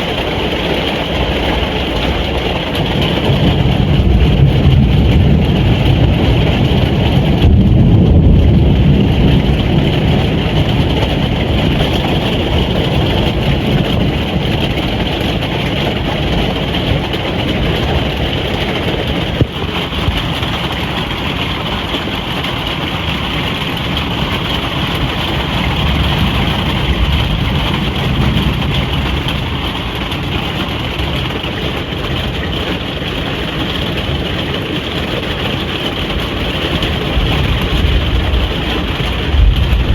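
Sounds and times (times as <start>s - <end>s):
rain drumming on caravan roof: 0.0s - 39.9s
deep low rumble: 3.1s - 31.4s, 36.9s - 39.9s.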